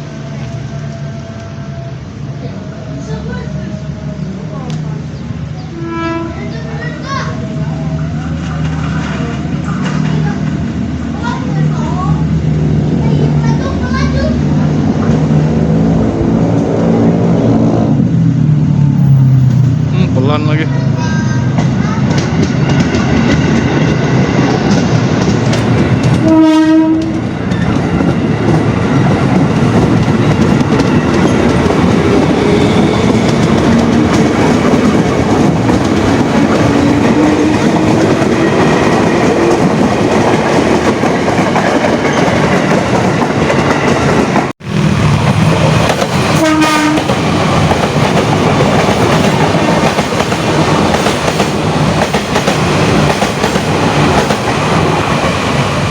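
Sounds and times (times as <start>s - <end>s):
train horn blast: 5.6s - 6.7s, 26.1s - 27.3s, 36.4s - 38.6s, 46.3s - 47.2s
train wheels clattering on rails: 6.5s - 17.3s, 21.0s - 55.9s.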